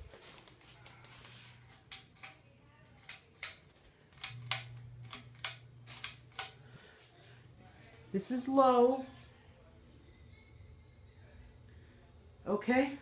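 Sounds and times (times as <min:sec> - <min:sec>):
ceiling fan humming: 0:00.0 - 0:13.0.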